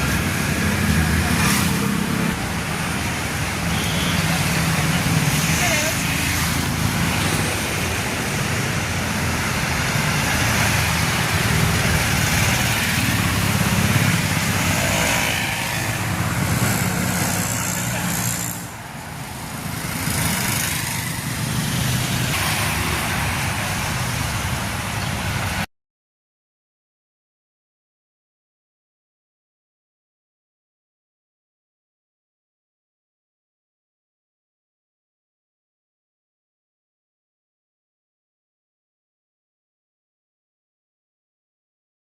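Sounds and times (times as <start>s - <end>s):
heavy vehicle engines running: 0.0s - 25.7s.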